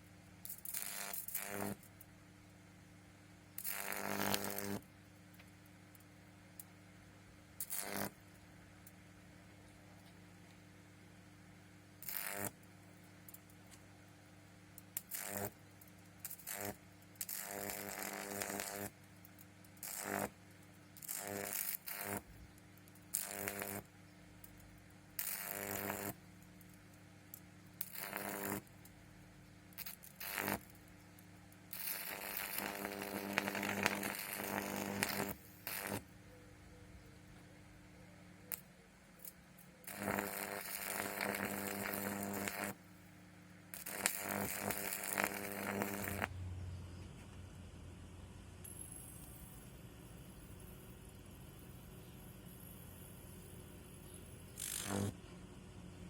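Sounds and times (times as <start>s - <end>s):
electric arcs buzzing and crackling: 0.0s - 2.1s, 3.6s - 6.7s, 7.6s - 9.0s, 12.0s - 13.8s, 14.8s - 29.0s, 29.7s - 36.1s, 38.5s - 42.9s, 43.7s - 46.3s, 53.2s - 55.2s
mains hum: 0.0s - 56.0s.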